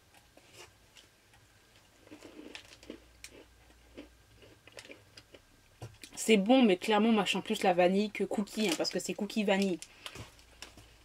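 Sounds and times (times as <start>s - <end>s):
person chewing biscuit: 0.1s - 6.1s.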